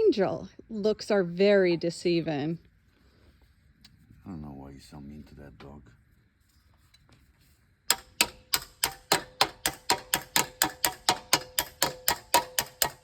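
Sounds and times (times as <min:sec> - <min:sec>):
metal tool hammering steel: 0:07.9 - 0:13.0.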